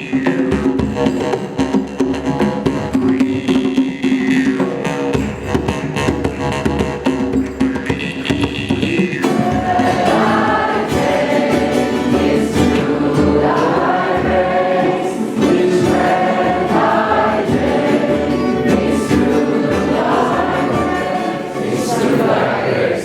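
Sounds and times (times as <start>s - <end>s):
group singing a chant: 9.2s - 23.0s.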